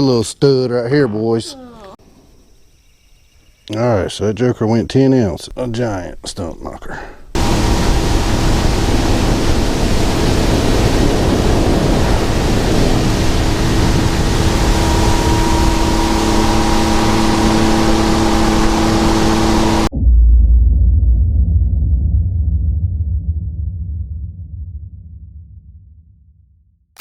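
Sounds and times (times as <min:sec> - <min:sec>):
outboard motor running: 0:07.4 - 0:19.9
rush of wind and water: 0:07.4 - 0:19.9.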